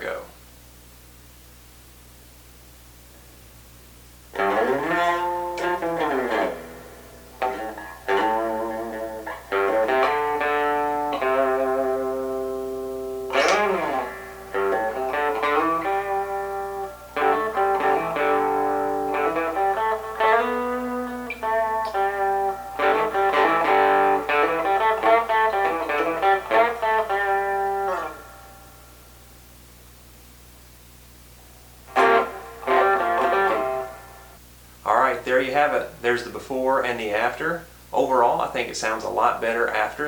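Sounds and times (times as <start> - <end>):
faint amp hum: 0.0 - 40.0
overdriven electric guitar riff: 4.3 - 29.2, 31.4 - 34.4.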